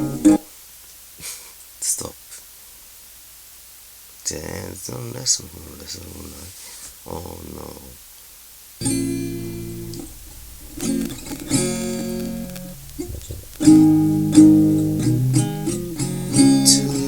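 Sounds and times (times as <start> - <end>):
guitar strumming chords: 8.8 - 17.0.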